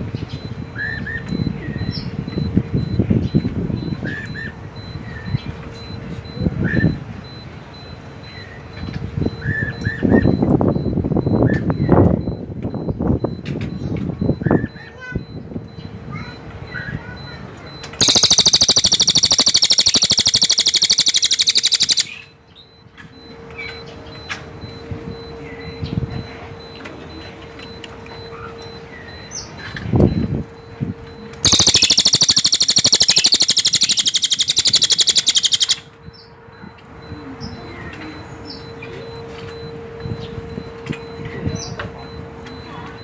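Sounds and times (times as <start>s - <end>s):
faint bird chirps: 13.7s - 26.7s, 31.4s - 43.0s
bird high-pitched rapid trills: 17.9s - 22.7s, 31.4s - 36.3s.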